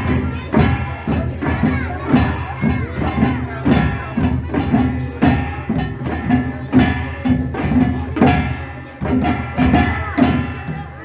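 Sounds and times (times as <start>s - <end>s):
percussion ensemble drums and gongs: 0.0s - 11.0s.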